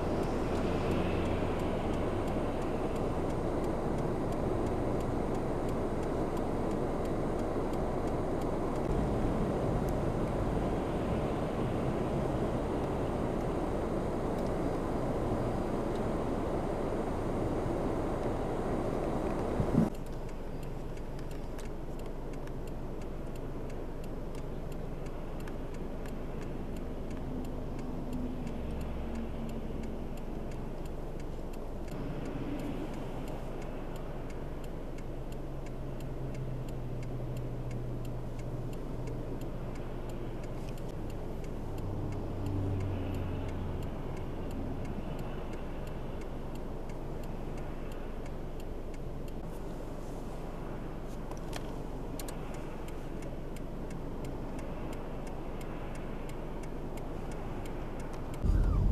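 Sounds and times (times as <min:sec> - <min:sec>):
faint regular ticking: 0:00.0 - 0:58.9
low engine hum: 0:00.0 - 0:58.9
rush of wind and traffic: 0:00.0 - 0:58.9
click: 0:19.2 - 0:23.4, 0:25.4 - 0:34.1, 0:37.0 - 0:41.2, 0:51.1 - 0:54.0, 0:54.6 - 0:58.9.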